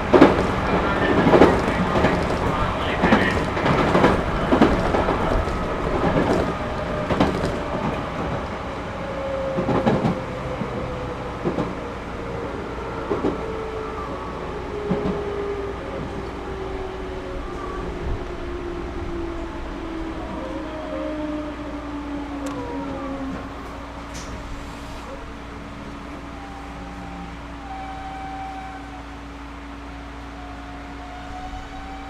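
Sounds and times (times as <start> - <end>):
wheels knocking over rail joints: 0.0 - 8.4
electric train rumbling: 0.0 - 32.0
train motor hum: 0.0 - 32.0.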